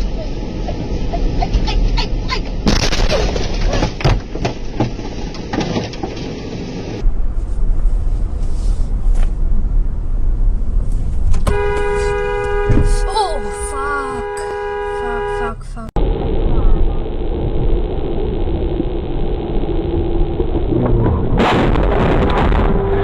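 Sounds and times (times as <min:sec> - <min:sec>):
road and engine noise: 0:00.0 - 0:23.0
car horn sounding: 0:11.4 - 0:15.8.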